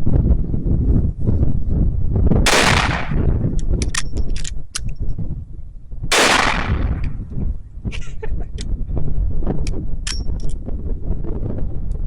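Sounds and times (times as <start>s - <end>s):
rifle shots: 2.5s - 3.4s, 6.1s - 7.2s
short metallic clicks: 10.0s - 10.6s.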